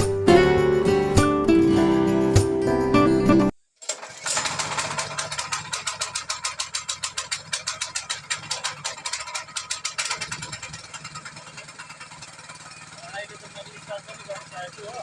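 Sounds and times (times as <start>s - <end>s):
tractor engine clattering: 3.8s - 15.0s.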